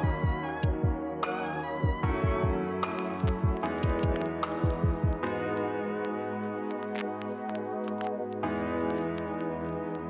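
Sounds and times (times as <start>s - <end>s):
falling kick-drum beat: 0.0s - 1.0s, 1.8s - 5.3s.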